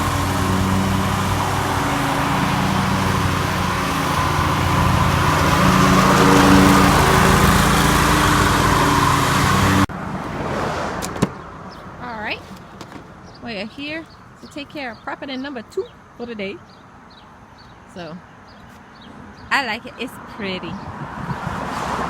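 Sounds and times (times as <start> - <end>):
motor engine running: 0.0 - 9.9.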